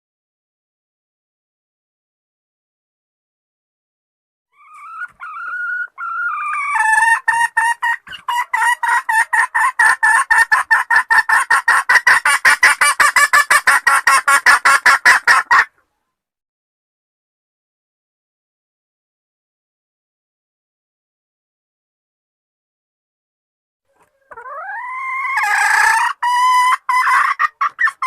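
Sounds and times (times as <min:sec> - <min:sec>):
hen whining and clucking: 0:04.5 - 0:15.8, 0:23.9 - 0:28.0.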